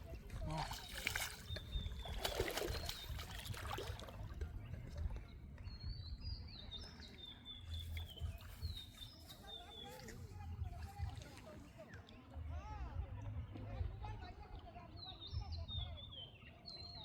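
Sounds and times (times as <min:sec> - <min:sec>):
crackling and splashing noises: 0:00.0 - 0:05.6, 0:07.0 - 0:12.5.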